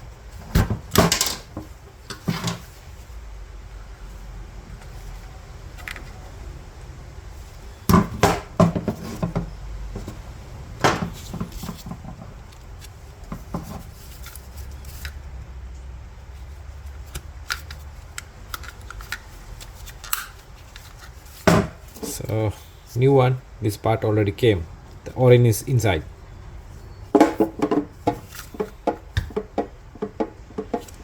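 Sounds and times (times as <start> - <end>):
sharp clicks and knocks: 27.2 - 31.0.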